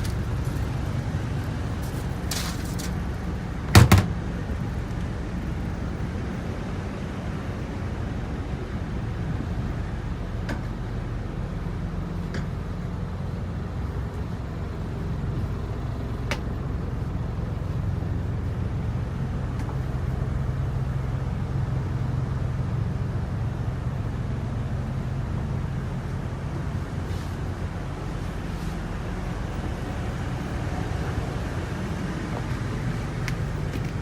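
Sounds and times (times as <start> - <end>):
truck engine idling: 0.0 - 34.0.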